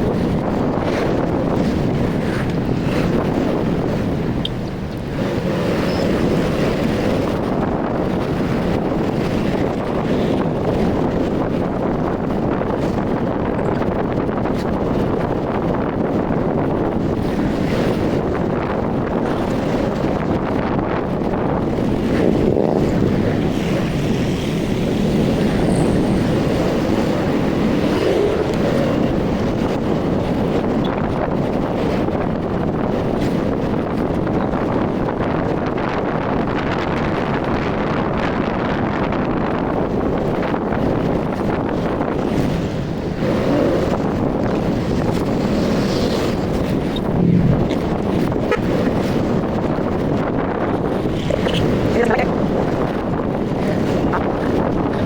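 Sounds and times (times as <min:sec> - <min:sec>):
wind rushing on microphone: 0:00.0 - 0:55.0
road noise: 0:16.5 - 0:34.8, 0:39.6 - 0:55.0.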